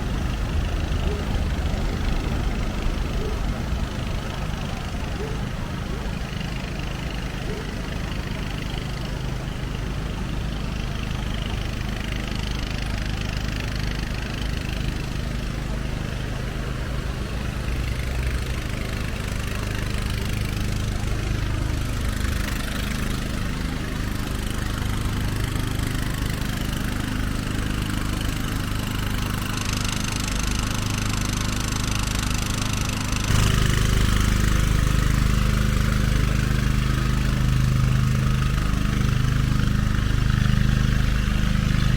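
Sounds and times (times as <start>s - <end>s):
vehicle engine idling: 0.0s - 41.9s.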